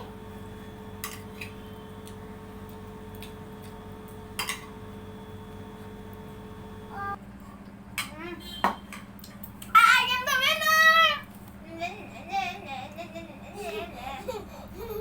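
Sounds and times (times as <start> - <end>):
steady low hum: 0.0 - 7.9.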